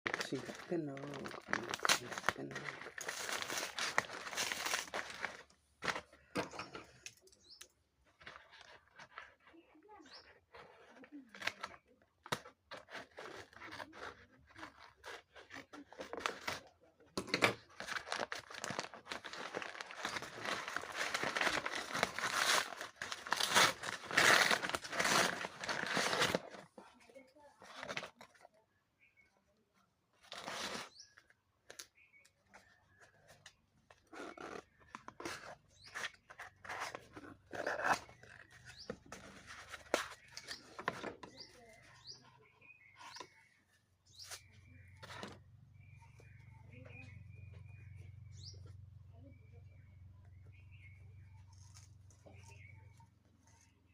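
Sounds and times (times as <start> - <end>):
packaging crinkling: 0.1 - 6.1, 17.6 - 26.7
bird chirps: 7.2 - 7.8, 38.0 - 39.4, 40.0 - 53.9.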